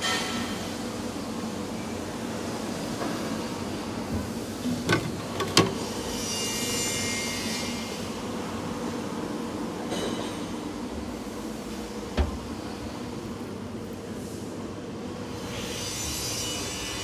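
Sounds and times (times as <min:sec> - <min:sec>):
machinery rumble with hum: 0:10.7 - 0:14.1.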